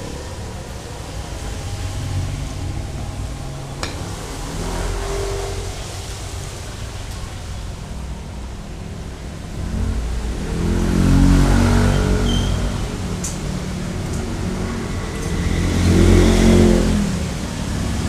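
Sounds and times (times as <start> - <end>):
traffic rumble: 0.0 - 18.0
vehicle engine passing: 0.0 - 18.0.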